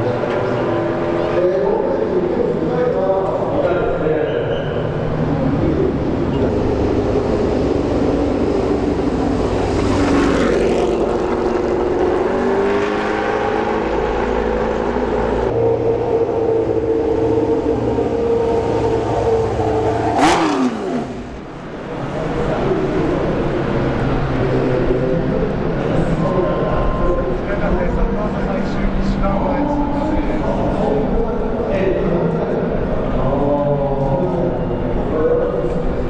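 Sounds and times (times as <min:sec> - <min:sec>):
racing car passing close: 0:00.0 - 0:33.2
racing car engines at high revs: 0:04.6 - 0:33.2.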